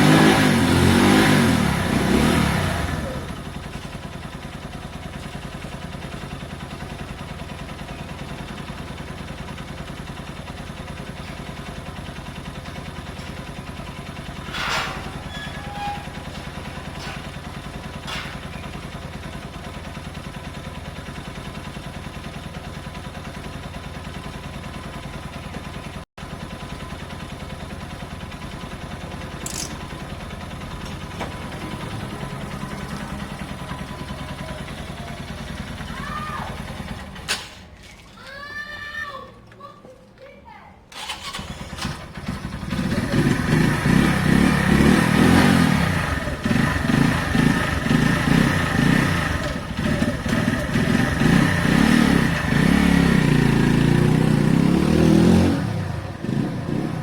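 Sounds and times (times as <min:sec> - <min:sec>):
motorcycle engine idling: 0:00.0 - 0:37.8, 0:41.0 - 0:57.0
sharp clicks: 0:29.4 - 0:29.8.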